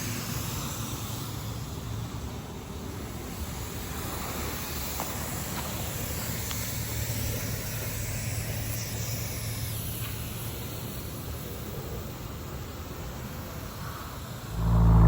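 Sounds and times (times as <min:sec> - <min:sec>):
low mechanical hum: 0:14.2 - 0:15.0.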